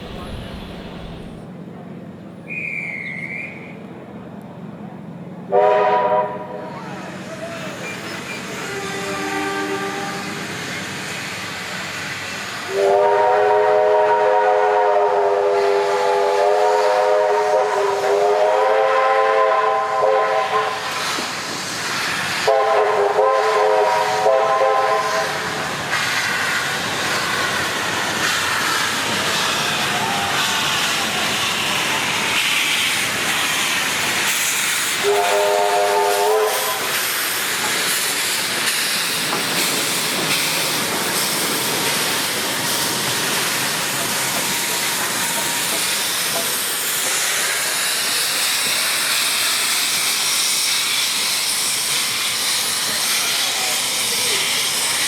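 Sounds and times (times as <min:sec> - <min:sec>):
steam locomotive whistle chord: 0:05.5 - 0:06.6, 0:12.7 - 0:20.9, 0:22.4 - 0:25.4, 0:35.0 - 0:36.9
steam hissing: 0:06.8 - 0:55.0.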